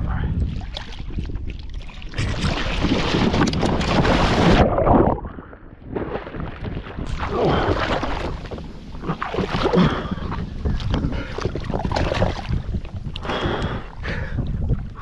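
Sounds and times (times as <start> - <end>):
water splashing and churning: 0.0 - 15.0
fish thrashing in water: 0.6 - 5.2, 6.0 - 12.7.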